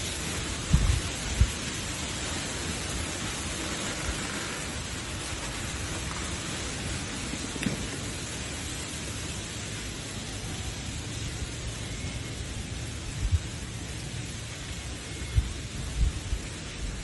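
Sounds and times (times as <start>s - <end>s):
steady hissing noise: 0.0s - 17.0s.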